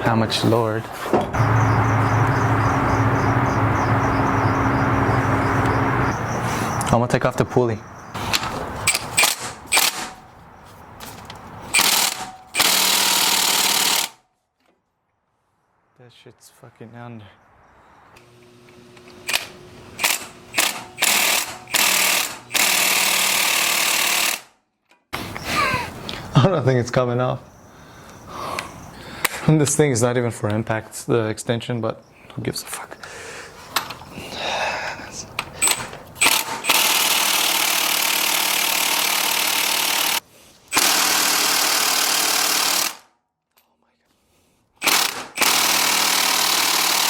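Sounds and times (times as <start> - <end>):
impact wrench hammering on bolt: 11.8 - 14.2, 20.0 - 24.4, 35.6 - 43.0, 44.8 - 47.0
impact wrench hammering: 20.0 - 24.4, 44.8 - 47.0.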